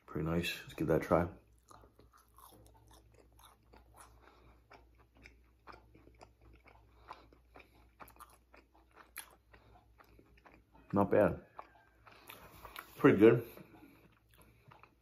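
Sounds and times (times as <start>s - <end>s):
chewing crispy fried fish: 0.5s - 15.0s.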